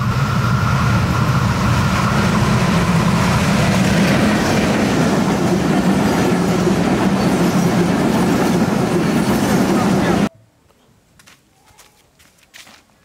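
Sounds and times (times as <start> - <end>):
train wheels rumbling on rails: 0.0 - 10.3.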